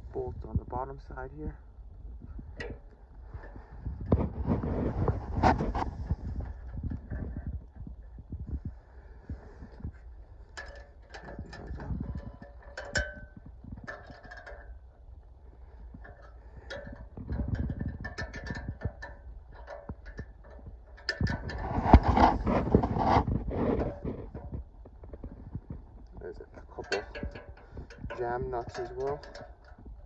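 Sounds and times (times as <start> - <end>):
clattering handling noise: 2.2 - 8.7, 9.3 - 30.0.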